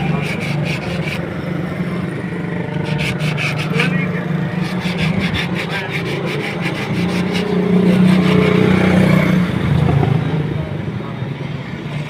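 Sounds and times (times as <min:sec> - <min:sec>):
motorcycle engine running: 0:07.4 - 0:10.8.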